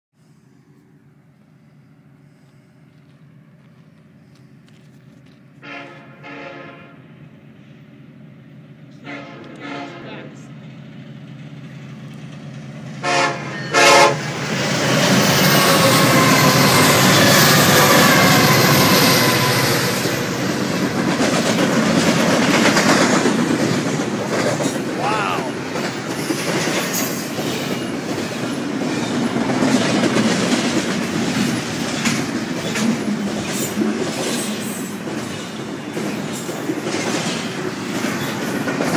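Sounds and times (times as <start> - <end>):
freight train rushing past: 5.4 - 38.9
train horn blasts: 5.6 - 7.1, 8.9 - 10.4, 13.0 - 14.3, 15.5 - 20.0
train wheel clatter: 14.2 - 38.9.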